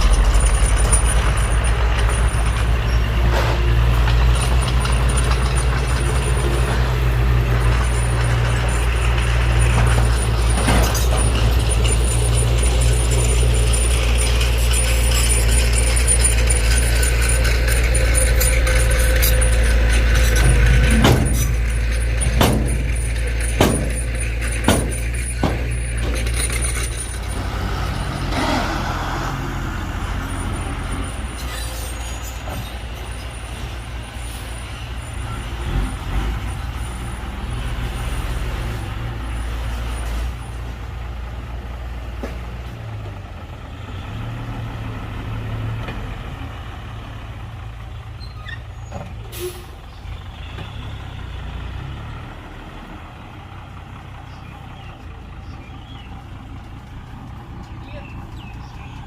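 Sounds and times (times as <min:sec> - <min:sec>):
diesel earthmoving machinery rumble: 0:00.0 - 0:59.0
sharp knocks: 0:20.3 - 0:26.8.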